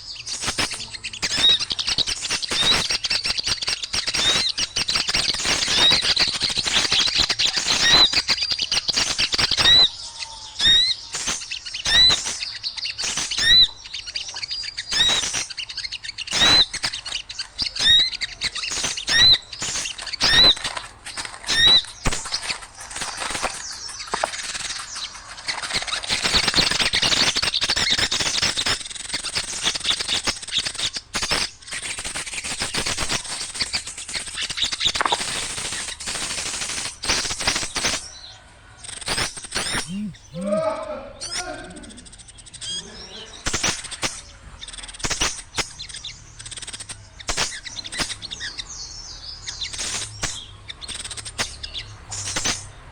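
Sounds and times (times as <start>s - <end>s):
small birds chattering: 0.0s - 52.9s
short hooked bird call: 39.7s - 42.1s.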